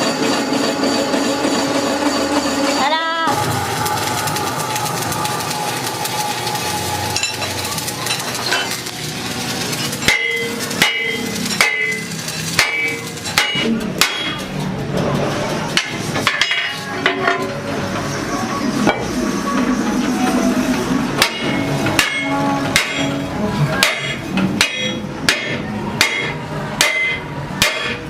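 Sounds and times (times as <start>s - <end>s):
hammer striking steel rim: 10.0s - 14.5s, 21.2s - 23.2s, 23.8s - 28.0s.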